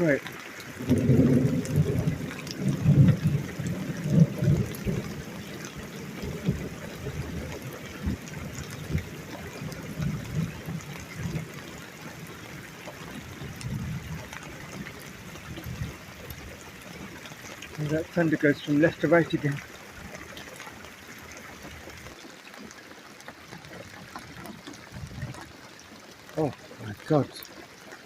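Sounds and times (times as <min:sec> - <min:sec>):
steady rain: 0:00.0 - 0:28.0
trickling water: 0:00.0 - 0:28.0
thunder rumbling: 0:00.8 - 0:11.6.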